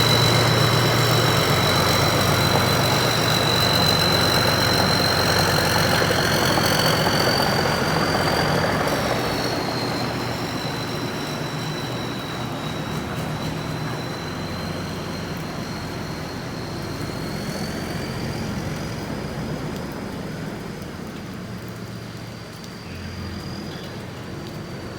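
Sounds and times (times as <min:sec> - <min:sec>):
high steady whine: 0:00.0 - 0:19.0
combine harvester engine running: 0:00.0 - 0:21.7.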